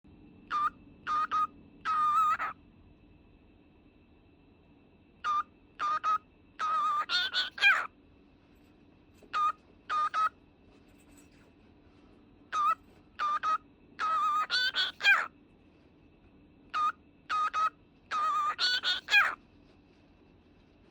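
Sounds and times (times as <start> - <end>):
cockatiel whistling: 0.5 - 2.5, 5.3 - 7.9, 9.3 - 10.3, 12.6 - 15.3, 16.7 - 19.4.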